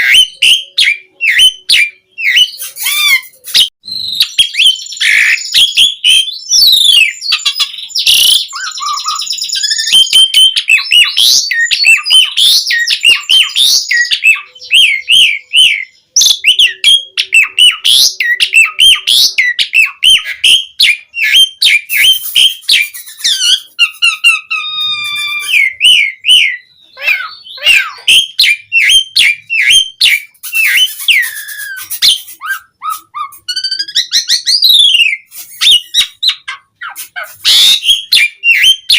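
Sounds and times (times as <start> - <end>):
starling singing: 0.0 - 38.9.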